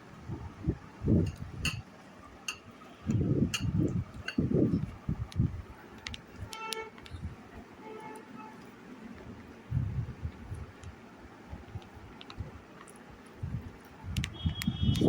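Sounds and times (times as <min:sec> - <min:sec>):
muffled eating sounds: 0:01.1 - 0:15.0
spoon clinking on steel plates: 0:01.3 - 0:01.9, 0:02.5 - 0:02.8, 0:03.5 - 0:04.5.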